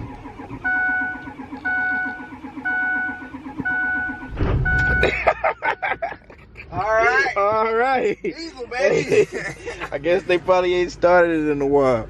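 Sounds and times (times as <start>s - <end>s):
diesel engine cranking and starting: 0.0s - 5.7s
warning chime dinging: 0.6s - 5.3s.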